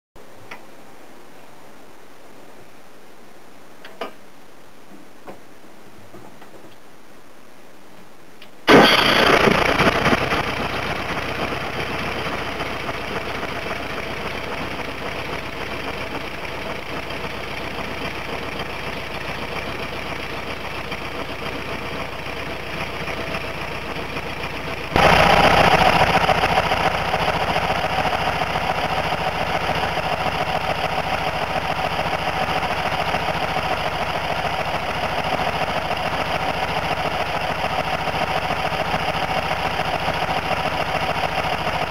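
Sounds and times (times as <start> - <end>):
engine starting and idling: 8.7 - 41.9.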